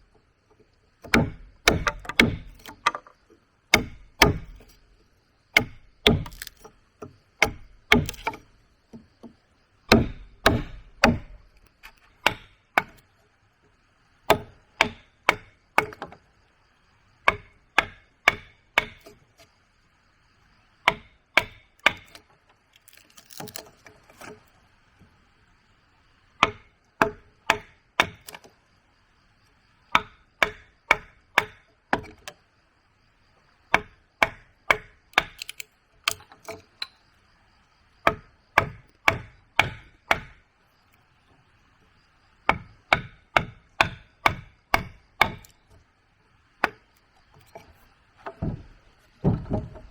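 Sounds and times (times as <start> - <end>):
wood chopping blows: 1.0 - 3.1, 3.7 - 4.8, 5.6 - 6.7, 7.4 - 8.4, 9.9 - 11.5.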